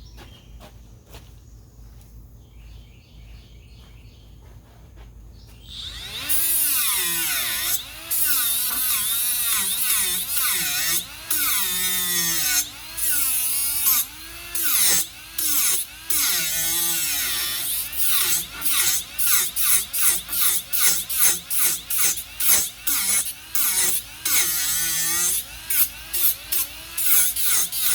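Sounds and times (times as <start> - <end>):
power tool motor whine: 5.6 - 27.9.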